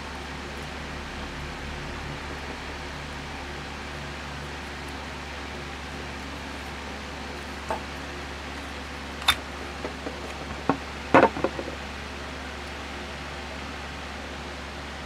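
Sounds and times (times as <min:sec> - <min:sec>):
low hum and hiss: 0:00.0 - 0:15.0
small parts clicking and knocking: 0:09.2 - 0:11.8.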